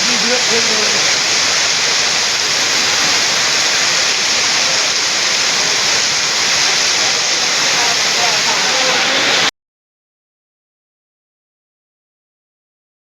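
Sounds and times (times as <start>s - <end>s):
heavy rain falling: 0.0s - 9.5s.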